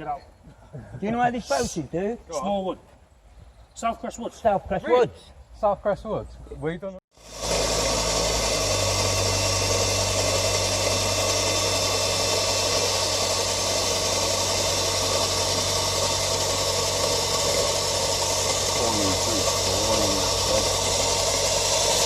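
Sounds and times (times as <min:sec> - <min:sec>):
motor running: 0:07.2 - 0:22.0.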